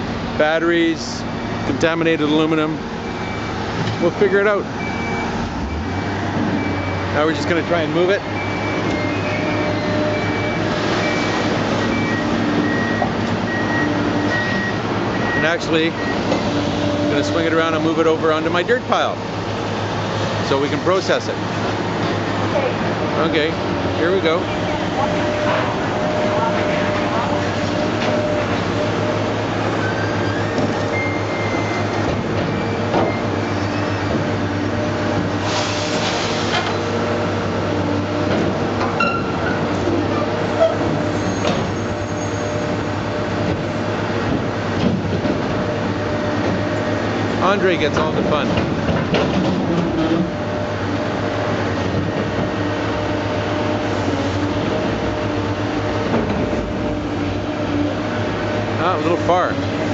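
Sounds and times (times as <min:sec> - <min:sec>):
heavy machine engine under load: 0:00.0 - 0:59.9
hydraulic whine: 0:00.3 - 0:48.5
high metal squeaks: 0:24.1 - 0:34.4, 0:38.9 - 0:42.8.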